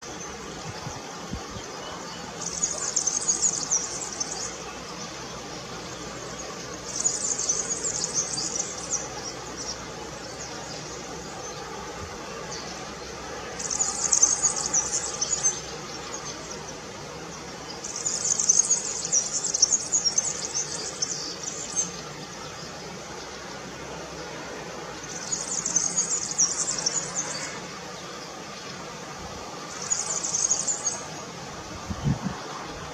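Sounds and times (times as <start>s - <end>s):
small bird twittering song: 0.0s - 32.9s.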